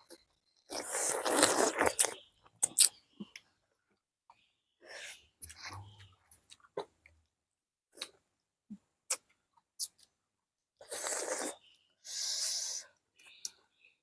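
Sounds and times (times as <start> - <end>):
mouth clicks and smacks: 1.9 - 3.4.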